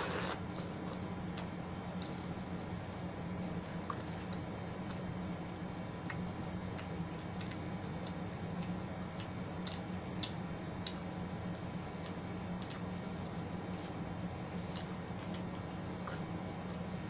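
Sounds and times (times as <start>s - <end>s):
steady low hum: 0.0s - 17.0s
chewing mouth smacks: 6.0s - 14.0s, 14.6s - 16.9s.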